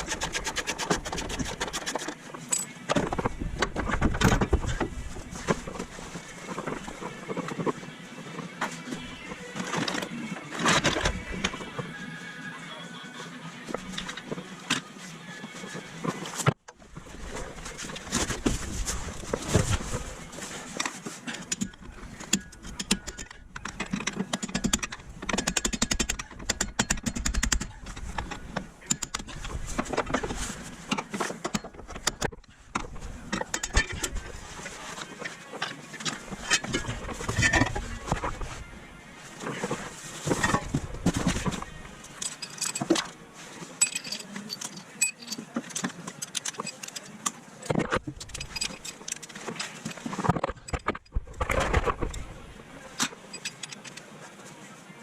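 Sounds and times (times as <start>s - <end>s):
metal tools clinking and knocking: 1.8s - 4.8s, 33.2s - 38.3s, 39.6s - 52.1s.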